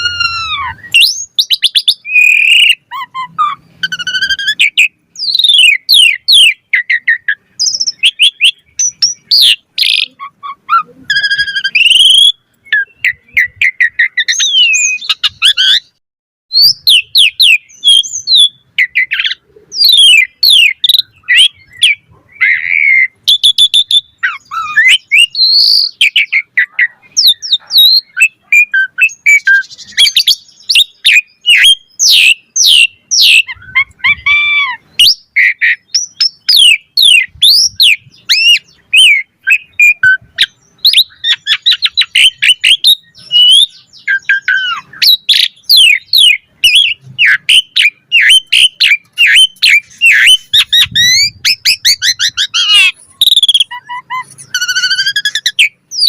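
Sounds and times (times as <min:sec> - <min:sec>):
starling singing whistles and chirps: 0:00.0 - 0:56.0.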